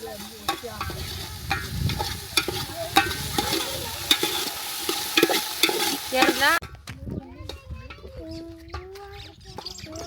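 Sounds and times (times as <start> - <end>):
flatbread sizzling in oil: 0.0 - 6.6
utensil scraping a pan: 0.0 - 6.6.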